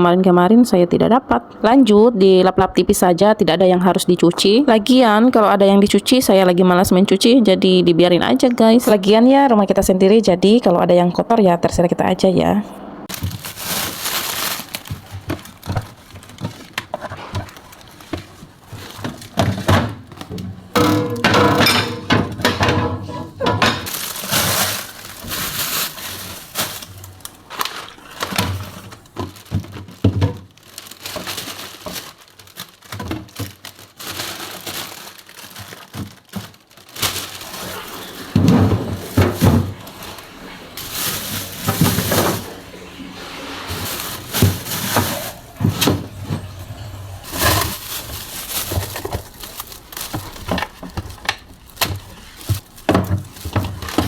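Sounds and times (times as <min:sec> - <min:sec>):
plastic bags rustling: 0:13.0 - 0:54.0
containers knocking in refrigerator: 0:14.8 - 0:24.2, 0:38.1 - 0:42.7.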